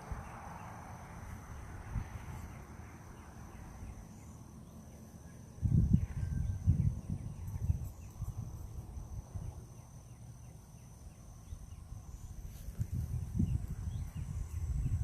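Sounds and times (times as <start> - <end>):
wind gusting on microphone: 0.0 - 4.2, 5.5 - 10.4, 11.0 - 15.0
high insect trill: 0.0 - 15.0.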